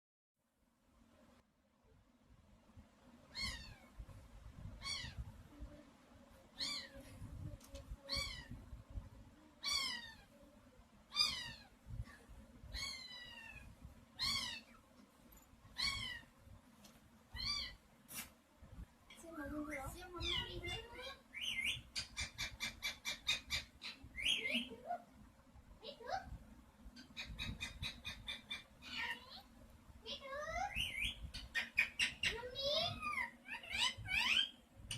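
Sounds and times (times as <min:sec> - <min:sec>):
parrot mimicking cat meow: 0:11.1 - 0:11.7.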